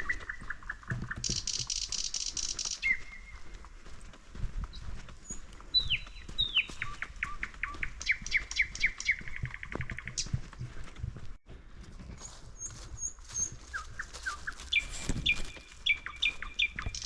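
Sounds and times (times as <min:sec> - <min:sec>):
footsteps on forest floor: 0:00.0 - 0:17.0
songbird whistling and trilling: 0:01.3 - 0:03.4, 0:05.2 - 0:10.3, 0:12.6 - 0:17.0.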